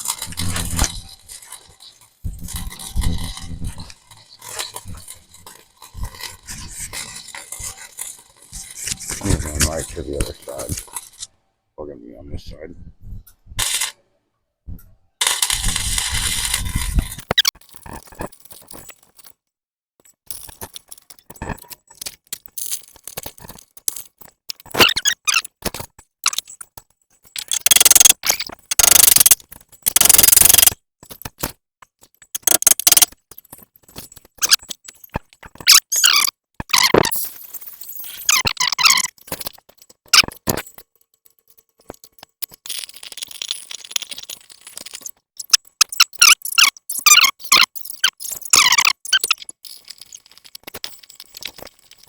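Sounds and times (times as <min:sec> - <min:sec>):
welder crackling: 0:27.6 - 0:30.8, 0:32.4 - 0:33.1.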